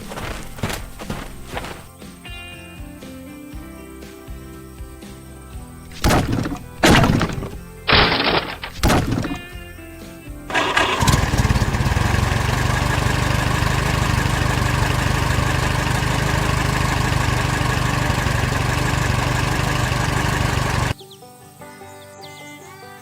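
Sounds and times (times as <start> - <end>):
engine starting and idling: 5.9 - 9.5, 10.5 - 21.0.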